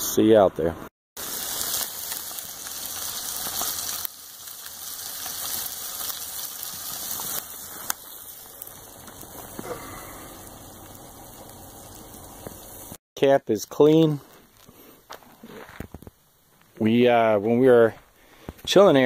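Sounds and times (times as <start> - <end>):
food sizzling on a grill: 1.2 - 13.0.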